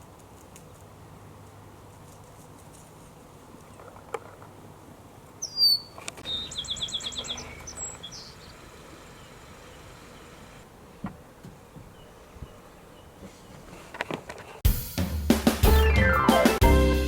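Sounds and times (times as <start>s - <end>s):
bird song with trill: 5.4s - 10.6s, 11.7s - 13.6s, 15.7s - 16.4s.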